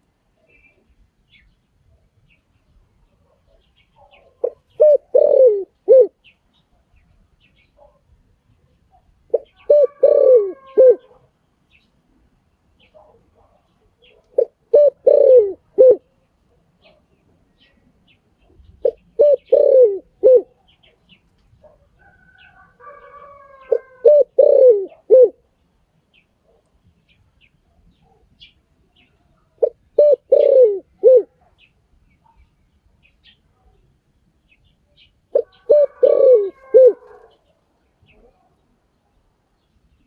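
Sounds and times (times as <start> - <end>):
dove cooing: 4.0 - 6.3, 9.3 - 11.3, 12.9 - 16.2, 18.5 - 21.0, 21.6 - 25.5, 29.6 - 31.5, 35.3 - 37.5.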